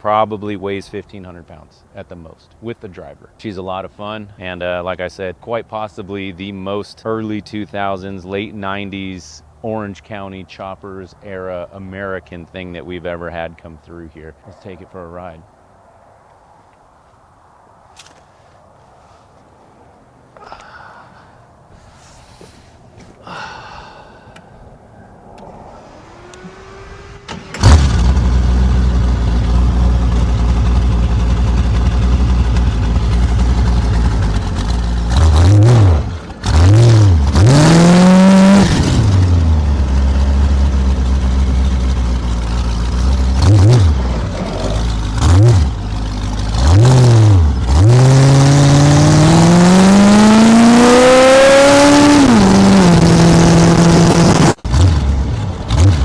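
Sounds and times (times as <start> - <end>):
engine revving: 25.2 - 56.0
engine starting: 25.3 - 28.5
engine idling: 25.9 - 37.4, 38.8 - 48.0.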